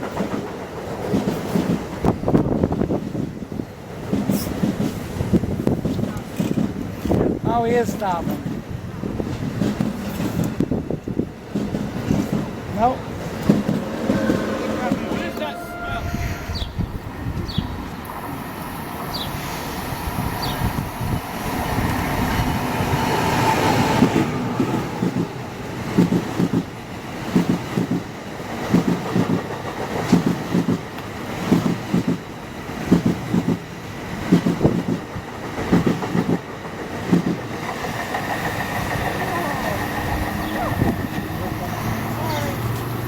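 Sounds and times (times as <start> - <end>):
passenger train passing: 0.0 - 43.0
wheels clacking over rail joint: 4.0 - 15.6, 25.9 - 43.0.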